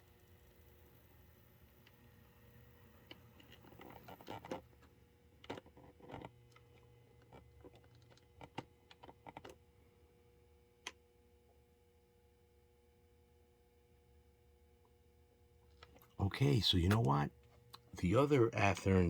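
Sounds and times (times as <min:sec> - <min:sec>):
faint steady hum: 0:00.0 - 0:19.0
small clicks and taps: 0:03.1 - 0:09.6.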